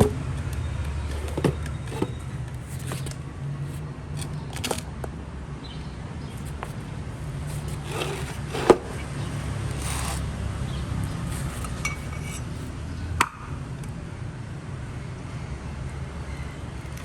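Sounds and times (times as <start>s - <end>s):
faint rustling and handling noise: 0.9s - 4.8s, 6.3s - 10.3s, 11.1s - 12.7s.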